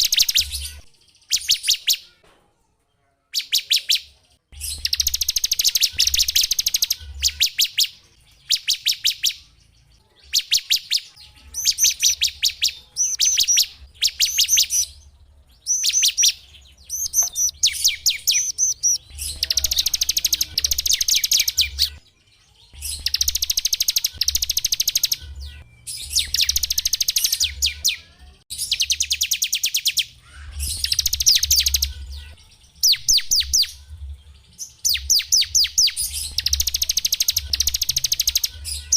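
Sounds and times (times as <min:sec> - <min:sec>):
songbird singing high trills: 0:10.3 - 0:22.0, 0:34.9 - 0:38.9.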